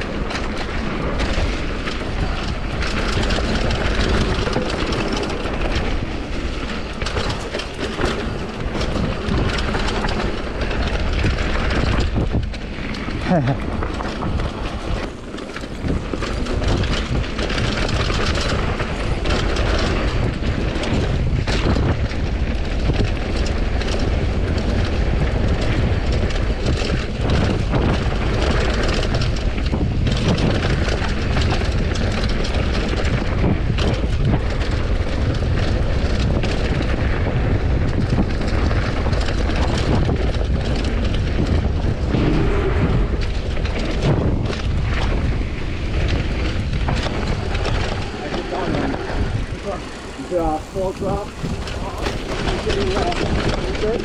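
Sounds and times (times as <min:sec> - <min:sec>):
tyres rolling over dirt trail: 0:00.0 - 0:54.0
wind buffeting microphone: 0:00.0 - 0:54.0.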